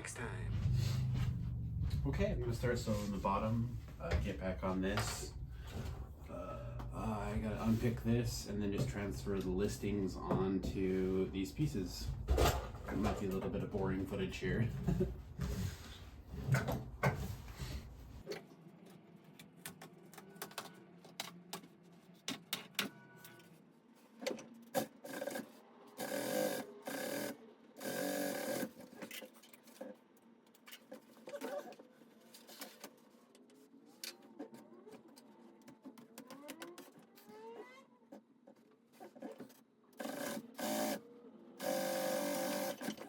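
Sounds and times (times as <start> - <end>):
sewing machine running: 26.0 - 28.9, 40.0 - 41.0, 41.6 - 43.0.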